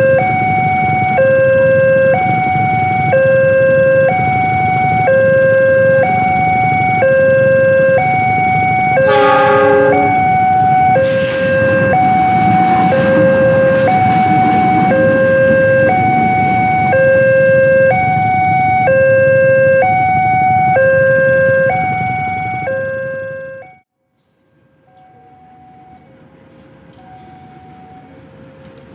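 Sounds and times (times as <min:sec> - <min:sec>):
two-tone level crossing alarm: 0:00.0 - 0:23.8
short horn blast: 0:09.0 - 0:10.4.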